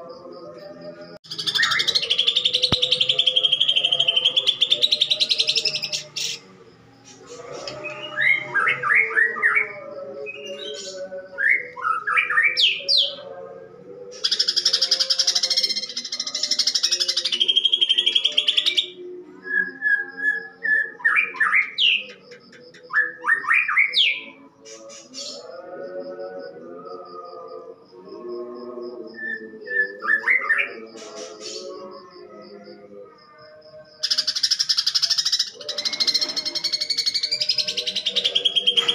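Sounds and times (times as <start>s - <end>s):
bird harsh fast song: 1.3s - 6.5s.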